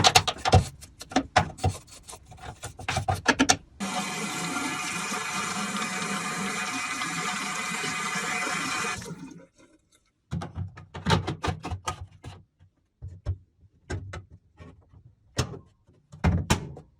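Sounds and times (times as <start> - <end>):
water running: 3.8 - 9.4.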